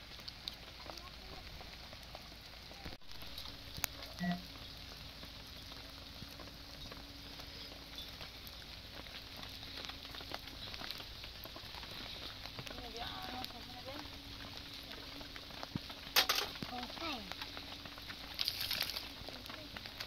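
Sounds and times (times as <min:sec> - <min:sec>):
rain pattering: 0:00.0 - 0:20.0.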